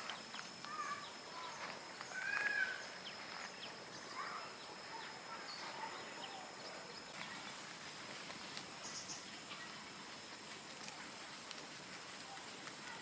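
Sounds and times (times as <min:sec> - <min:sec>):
faint scattered clicks: 0:10.3 - 0:13.0.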